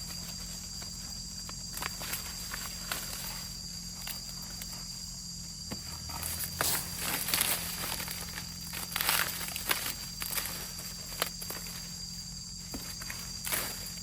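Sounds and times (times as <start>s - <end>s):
rustling and crackling: 0.0s - 14.0s
steady high-pitched hum: 0.0s - 14.0s.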